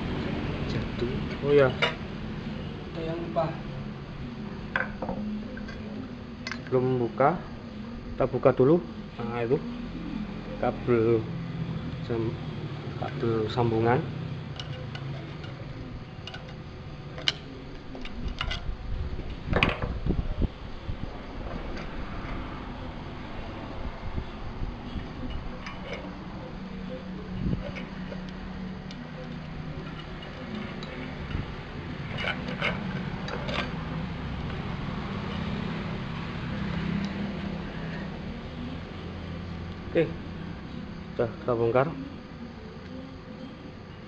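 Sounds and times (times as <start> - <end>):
low steady hum: 0.0 - 44.0
clicks and knocks of hand tools: 14.5 - 15.6
metal parts knocking and clicking: 16.2 - 16.6.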